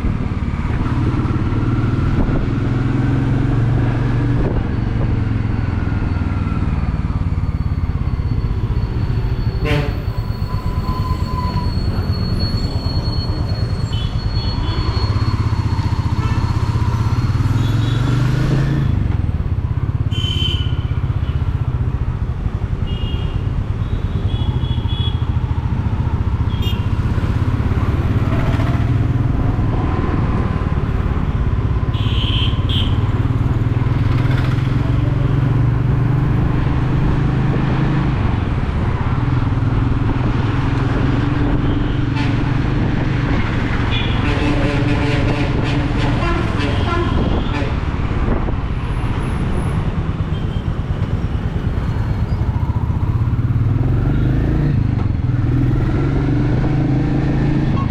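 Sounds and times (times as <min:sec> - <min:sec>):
motorcycle engine cruising: 0:24.3 - 0:44.1, 0:49.1 - 0:57.9.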